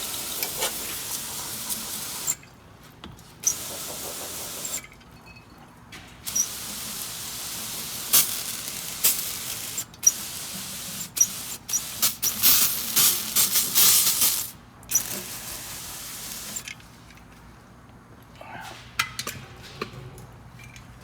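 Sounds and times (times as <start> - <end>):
aerosol can spraying: 3.4 - 4.8, 6.3 - 14.5.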